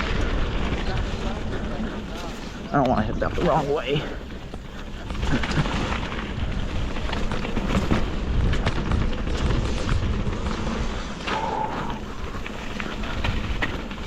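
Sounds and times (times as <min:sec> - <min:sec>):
bike rattling over bumps: 0:00.0 - 0:14.0
tyres rumbling on dirt trail: 0:00.0 - 0:14.0
wind noise: 0:00.0 - 0:14.0.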